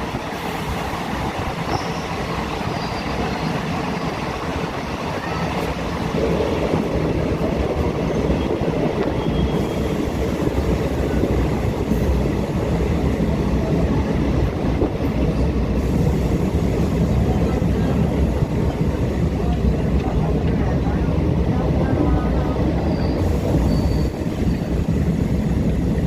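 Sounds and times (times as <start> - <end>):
passenger train on rails: 0.0 - 26.0.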